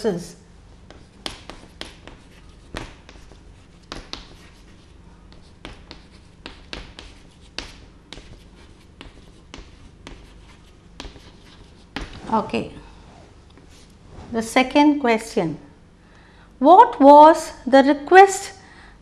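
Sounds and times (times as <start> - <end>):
writing taps on a board: 0.9 - 4.6, 5.3 - 12.2.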